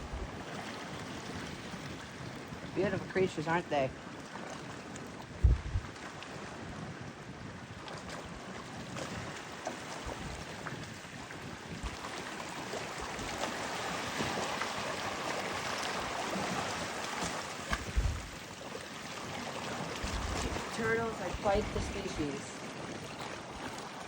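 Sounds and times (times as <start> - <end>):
wind bumps on microphone: 0.0 - 3.1, 4.5 - 14.5, 15.9 - 23.8
ocean water washing on shore: 0.0 - 24.0.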